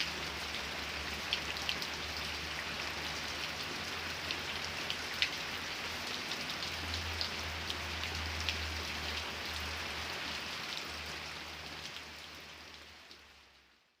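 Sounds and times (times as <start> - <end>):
rain hiss: 0.0 - 13.7
rain drops ticking on surface: 0.0 - 14.0.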